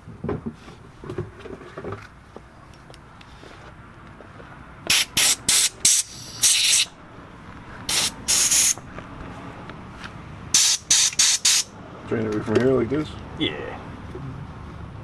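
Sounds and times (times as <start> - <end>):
aerosol spray hissing: 4.9 - 6.9, 7.9 - 8.8, 10.6 - 11.7.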